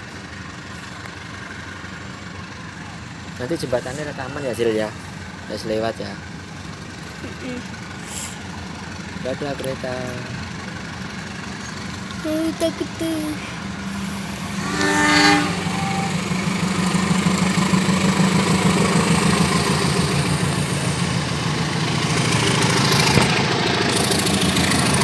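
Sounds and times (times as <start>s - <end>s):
train rumbling past: 0.0s - 25.0s
train horn blast: 13.9s - 17.2s.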